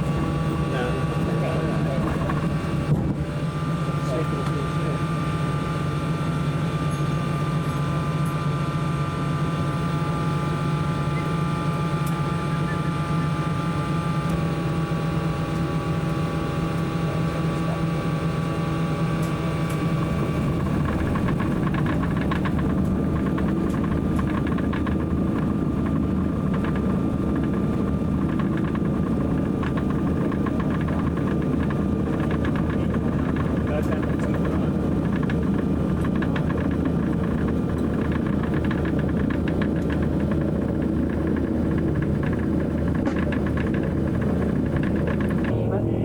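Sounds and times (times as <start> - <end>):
propeller plane engines droning: 0.0 - 46.0
airframe rattling: 28.2 - 45.8.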